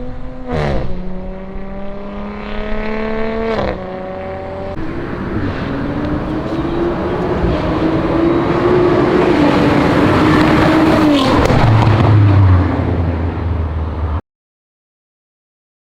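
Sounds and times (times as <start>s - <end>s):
car engine accelerating: 0.0s - 14.2s
exhaust crackle: 4.8s - 14.2s.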